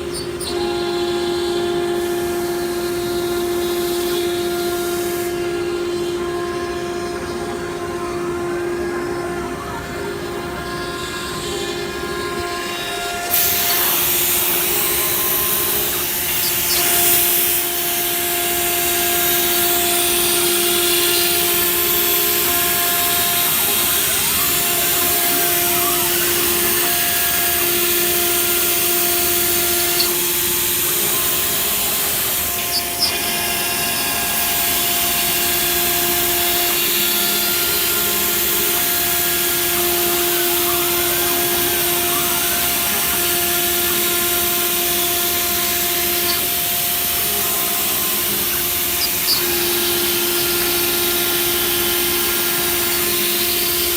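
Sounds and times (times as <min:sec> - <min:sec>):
cnc router spindle whining: 0:00.0 - 0:53.9
router cutting wood panel: 0:00.0 - 0:53.9.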